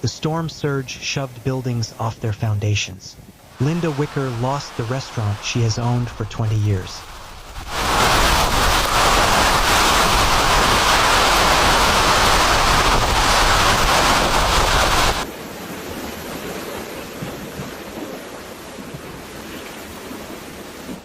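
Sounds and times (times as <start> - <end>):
quiet hiss: 0.0 - 7.7
loud rushing storm noise: 3.5 - 15.3.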